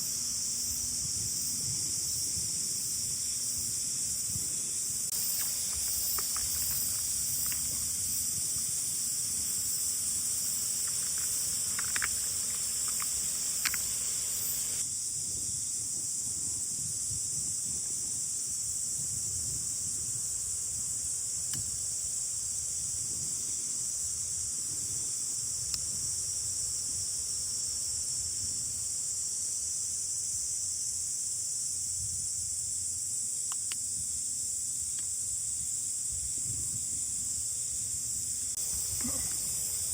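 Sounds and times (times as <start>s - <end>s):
wind rumbling on microphone: 0.0s - 27.1s, 35.3s - 37.5s
insects chorus: 0.0s - 39.9s
light clicks: 5.2s - 7.8s, 10.8s - 14.0s.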